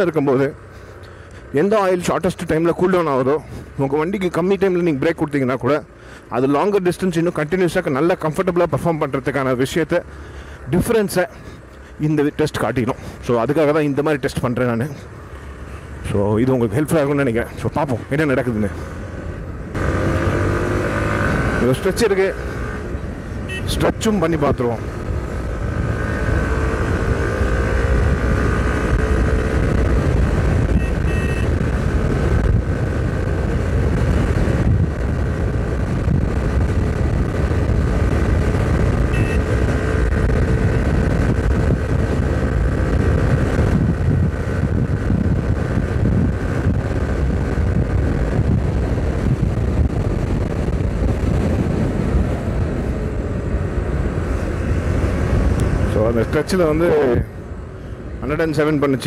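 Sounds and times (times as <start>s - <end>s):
motorcycle engine at speed: 18.4s - 59.0s
wind rumbling on microphone: 22.5s - 59.0s.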